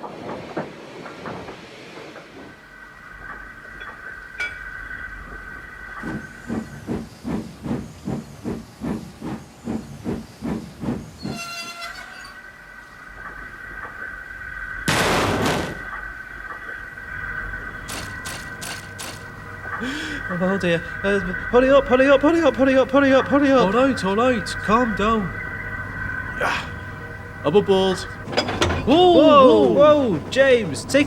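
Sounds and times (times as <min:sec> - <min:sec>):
steam locomotive chuffing: 0:00.0 - 0:31.0
locomotive whistle blast: 0:11.2 - 0:12.6.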